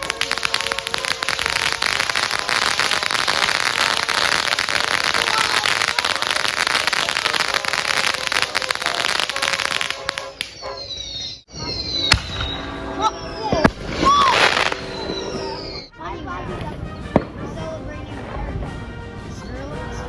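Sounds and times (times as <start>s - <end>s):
falling firework whistles: 0.0s - 15.9s
fireworks crackling: 0.0s - 19.4s.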